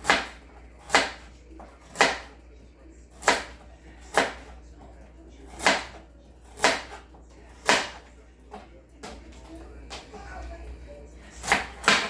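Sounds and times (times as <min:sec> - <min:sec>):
knife chopping on cutting board: 0:00.0 - 0:02.4, 0:03.1 - 0:04.6, 0:05.5 - 0:08.1, 0:11.4 - 0:12.0.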